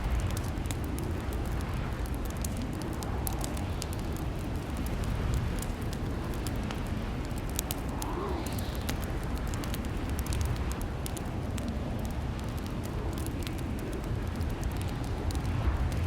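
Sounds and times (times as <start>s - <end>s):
low rumble: 0.0s - 10.6s
wood fire crackling: 0.0s - 16.0s.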